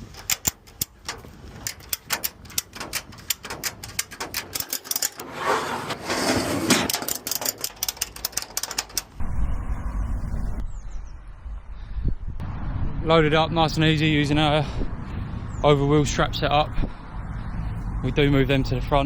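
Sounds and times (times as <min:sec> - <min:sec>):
ratchet strap clicking: 0:00.0 - 0:05.2, 0:06.9 - 0:09.2.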